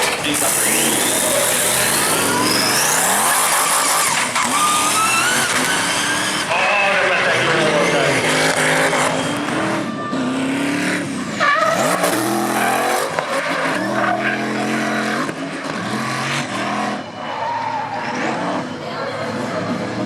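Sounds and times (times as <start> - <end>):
tyres squealing: 0.0 - 9.8
car engine revving: 0.0 - 20.0.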